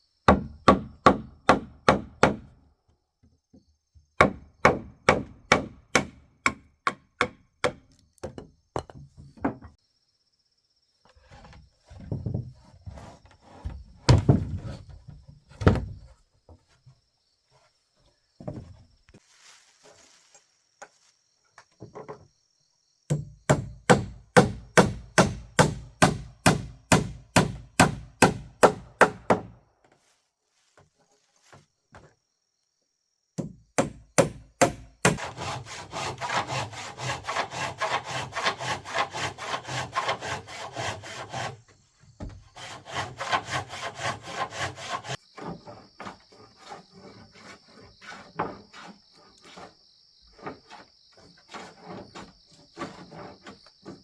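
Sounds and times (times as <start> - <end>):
hand saw cutting wood: 4.2 - 7.8, 23.1 - 29.5, 33.8 - 41.7, 42.5 - 54.0.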